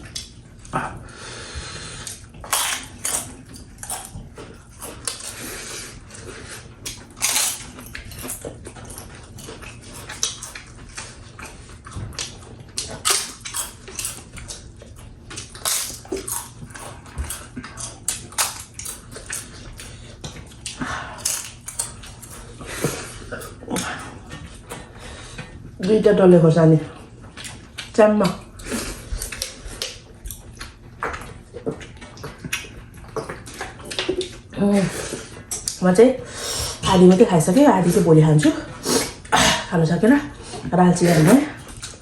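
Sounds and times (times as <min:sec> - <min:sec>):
chewing and slurping: 0:00.0 - 0:26.0, 0:26.7 - 0:42.0
noisy breaths: 0:00.7 - 0:02.2, 0:05.2 - 0:06.8, 0:22.4 - 0:25.7, 0:36.2 - 0:36.8.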